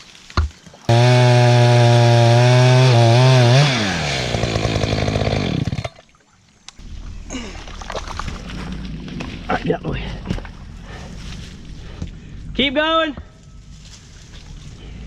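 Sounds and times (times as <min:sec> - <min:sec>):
chainsaw running: 0:00.9 - 0:06.0.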